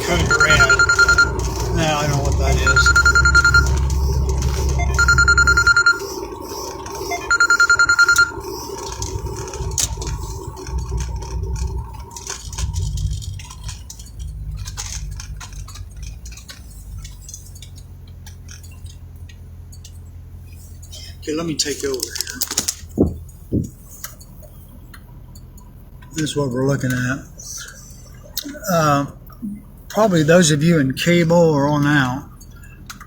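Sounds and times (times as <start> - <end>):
phone emergency alert beeps: 0.0 - 10.7
vehicle interior rumble: 0.0 - 33.0.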